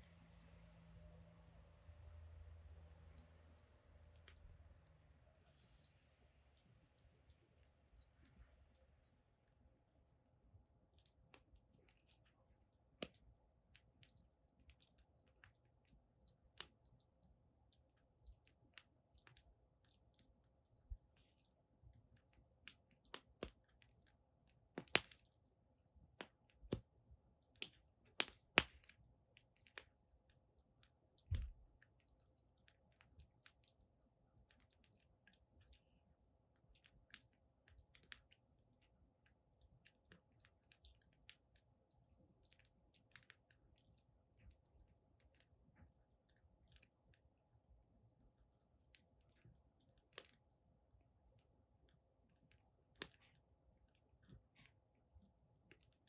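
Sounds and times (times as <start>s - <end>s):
firewood crackling and popping: 17.8s - 35.9s, 36.6s - 38.4s, 42.4s - 47.2s, 48.9s - 50.5s, 52.2s - 53.4s.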